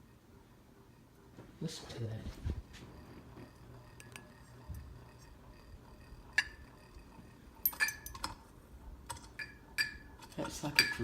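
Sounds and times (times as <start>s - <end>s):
ceiling fan humming: 0.0s - 11.0s
loose part clinking: 7.6s - 8.4s.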